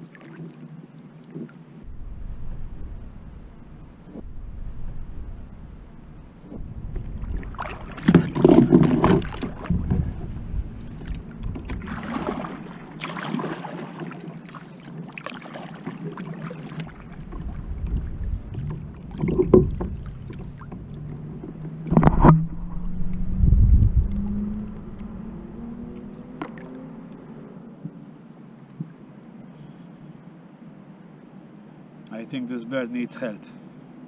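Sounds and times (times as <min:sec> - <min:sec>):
water splashing against hull: 0:00.0 - 0:26.8
faint steady hum: 0:00.0 - 0:34.0
low rumble: 0:01.8 - 0:13.0, 0:16.8 - 0:26.4.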